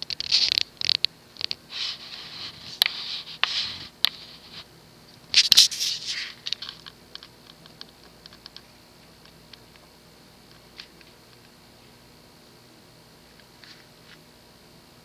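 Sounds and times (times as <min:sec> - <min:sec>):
scratching and rustling: 0:00.0 - 0:04.7, 0:05.3 - 0:09.6
ceiling fan motor hum: 0:00.0 - 0:15.0.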